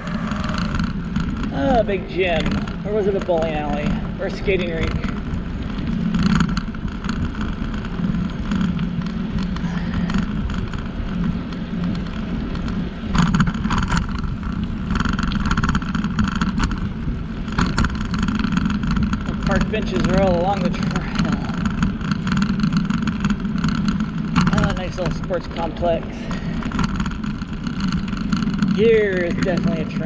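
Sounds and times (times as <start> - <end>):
bicycle tyre noise: 0.0 - 30.0
wind on microphone: 0.0 - 30.0.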